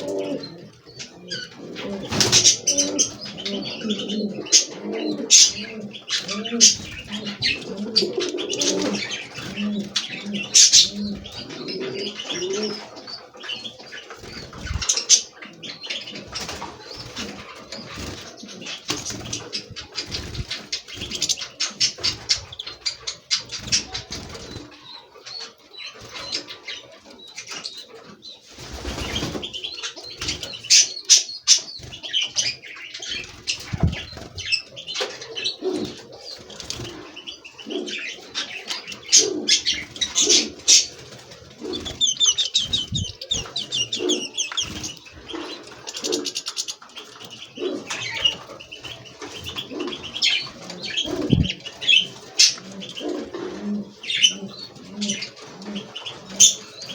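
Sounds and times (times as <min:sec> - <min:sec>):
finches chirping and twittering: 0:00.0 - 0:56.9
low cooing calls: 0:00.0 - 0:56.9
wing fluttering: 0:14.1 - 0:15.4, 0:16.1 - 0:24.7, 0:31.5 - 0:37.1, 0:38.8 - 0:53.5.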